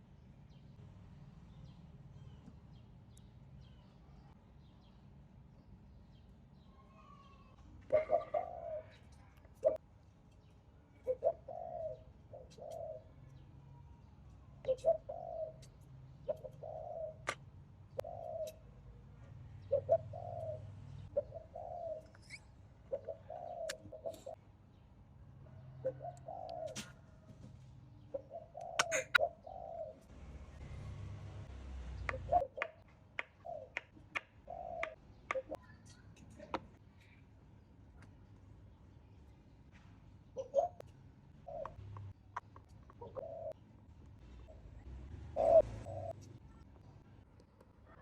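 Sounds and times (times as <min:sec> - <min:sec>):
bird cooing: 0:07.9 - 0:09.8, 0:11.0 - 0:13.2, 0:14.6 - 0:17.4, 0:18.0 - 0:18.8, 0:19.6 - 0:24.4, 0:25.6 - 0:27.2, 0:28.1 - 0:30.6, 0:31.9 - 0:35.6, 0:40.4 - 0:42.2, 0:42.9 - 0:43.6, 0:44.4 - 0:46.6.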